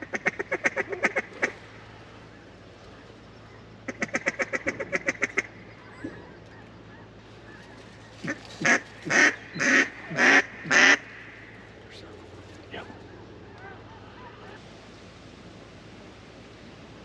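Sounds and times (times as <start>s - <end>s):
duck quacking: 0.0s - 1.6s, 3.8s - 5.7s, 8.2s - 11.4s.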